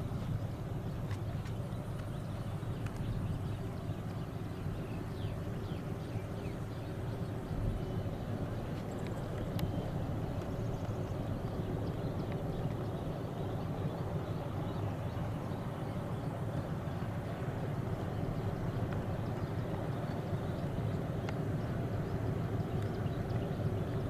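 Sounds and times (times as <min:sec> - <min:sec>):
faint track clicks: 0:00.9 - 0:04.3, 0:08.6 - 0:13.1, 0:17.2 - 0:21.7, 0:22.6 - 0:24.0.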